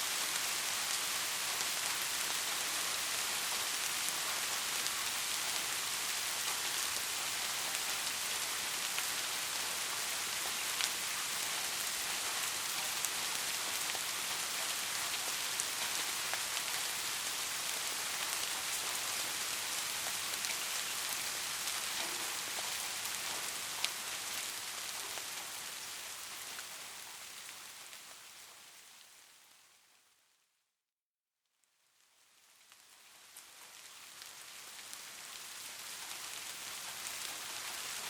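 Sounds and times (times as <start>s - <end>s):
soft rain falling: 0.0s - 30.5s, 31.5s - 38.0s
raindrops tapping a surface: 21.9s - 24.0s.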